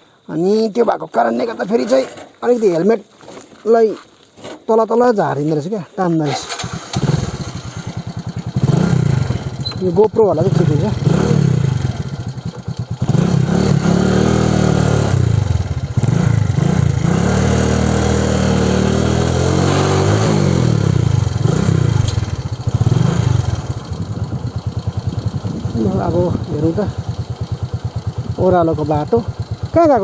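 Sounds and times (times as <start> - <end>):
motorcycle engine revving: 6.3 - 30.0.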